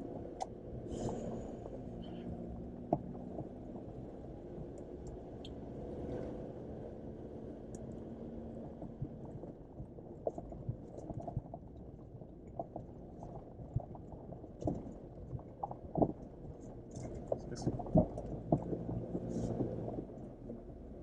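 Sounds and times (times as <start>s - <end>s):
low steady engine hum: 0.0s - 21.0s
vehicle knocks and clicks: 12.5s - 20.6s.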